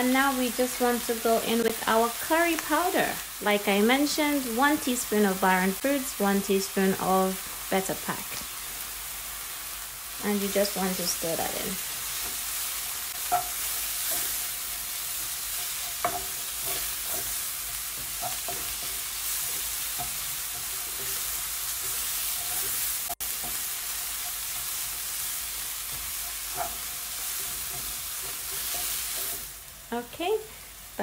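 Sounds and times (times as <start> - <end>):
onions sizzling in oil: 0.0 - 31.0
wooden spoon scraping: 11.8 - 24.8, 25.9 - 29.6
spoon knocking pan: 13.2 - 14.5, 15.1 - 24.4.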